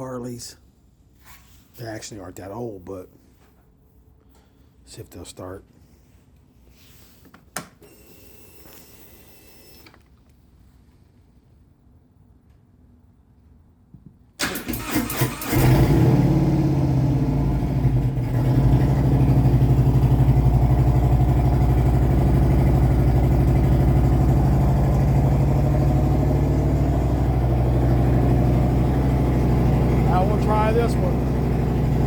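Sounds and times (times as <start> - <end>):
electric starter cranking: 14.4 - 16.7, 18.2 - 32.0
motorcycle engine idling: 17.0 - 32.0.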